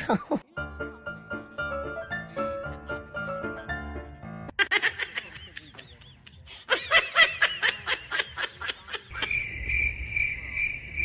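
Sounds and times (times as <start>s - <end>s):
cricket chirping: 9.1s - 11.0s.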